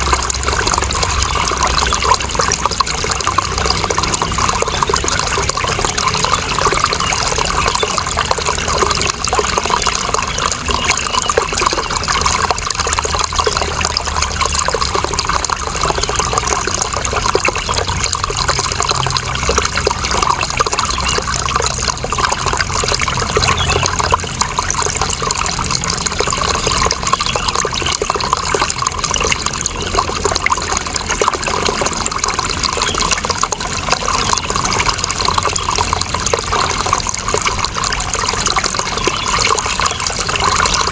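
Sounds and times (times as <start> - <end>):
running water flowing: 0.0 - 40.9.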